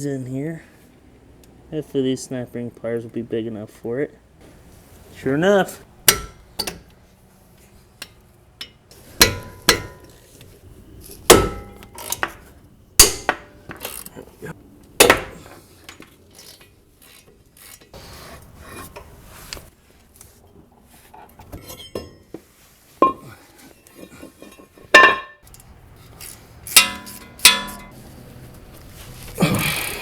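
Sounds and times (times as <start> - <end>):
sharp metallic clanks: 8.0 - 10.2, 13.0 - 14.1, 24.5 - 28.0
metal tools clinking and scraping: 21.5 - 22.4, 23.0 - 28.0.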